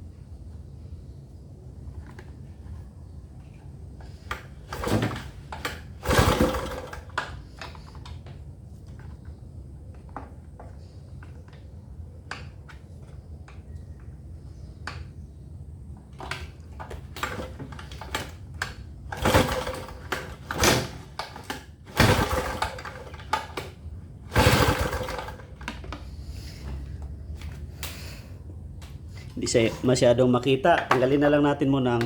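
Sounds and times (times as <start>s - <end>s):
recoil starter pulls rasping: 4.0s - 9.3s, 16.2s - 32.0s.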